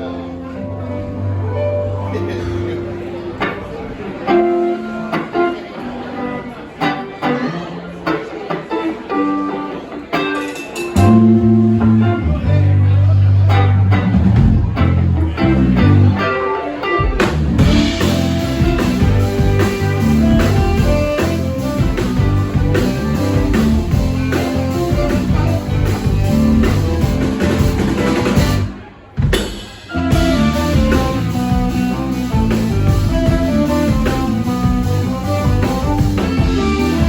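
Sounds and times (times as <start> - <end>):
electric guitar picking: 0.0 - 28.8, 29.4 - 37.0
bass guitar: 0.0 - 37.0
drums with cymbals: 10.2 - 11.2, 17.1 - 37.0.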